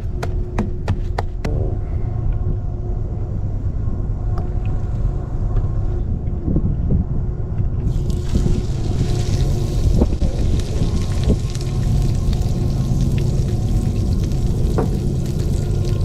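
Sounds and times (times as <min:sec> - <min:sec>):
steady low rumble: 0:00.0 - 0:16.0
bright hiss: 0:07.9 - 0:16.0.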